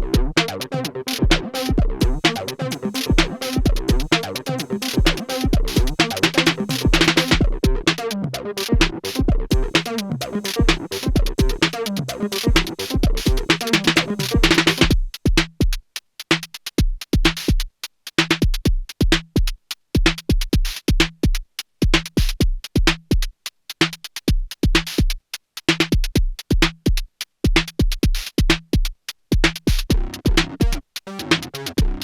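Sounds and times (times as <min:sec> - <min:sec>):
deep kick drum: 0:00.0 - 0:00.4, 0:01.2 - 0:02.3, 0:03.1 - 0:04.2, 0:05.0 - 0:07.9, 0:08.7 - 0:09.9, 0:10.6 - 0:11.7, 0:12.5 - 0:15.8, 0:16.8 - 0:17.7, 0:18.4 - 0:23.3, 0:26.0 - 0:30.8, 0:31.8 - 0:32.0
drum machine techno beat: 0:00.0 - 0:32.0.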